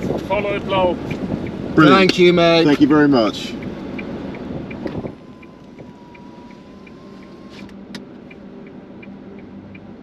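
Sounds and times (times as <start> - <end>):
idling engine hum: 0.0 - 10.0
hazard indicator ticking: 0.9 - 10.0
electric window whining: 3.8 - 8.5.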